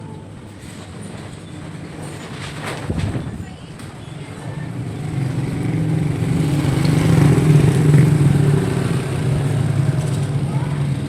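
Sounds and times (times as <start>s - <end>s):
engine humming: 3.3s - 11.0s.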